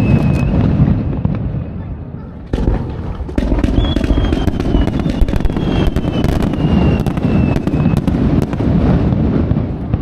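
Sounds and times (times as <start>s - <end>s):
faint falling whistle: 0.0s - 1.4s
fireworks bangs and crackles: 0.0s - 10.0s.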